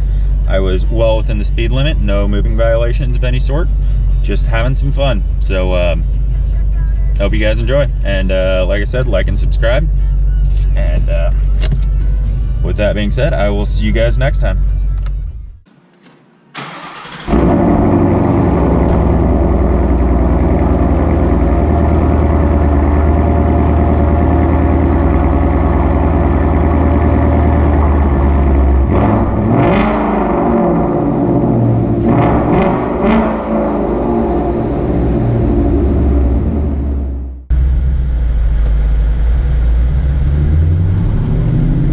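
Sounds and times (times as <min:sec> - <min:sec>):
loud car engine running: 0:17.2 - 0:41.9.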